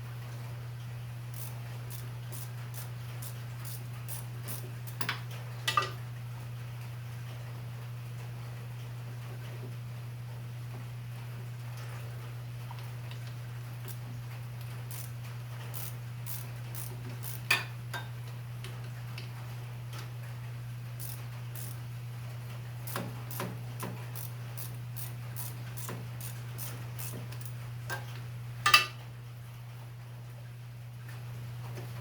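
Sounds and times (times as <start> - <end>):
hand ratchet clicking: 1.4 - 5.1, 14.9 - 15.1, 15.7 - 17.6, 21.0 - 21.8, 22.9 - 27.6
metal tools clinking: 28.7 - 29.0.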